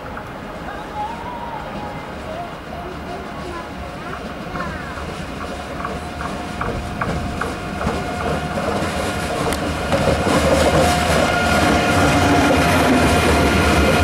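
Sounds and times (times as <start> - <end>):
steady train whine: 0.0 - 14.0
train wheels clicking over joints: 3.0 - 14.0.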